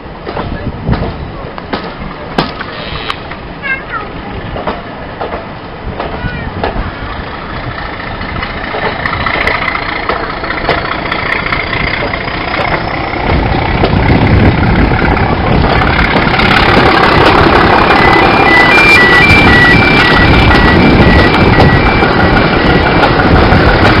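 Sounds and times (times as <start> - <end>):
train carriage running on track: 0.0 - 24.0
level crossing alarm beeping: 17.2 - 24.0.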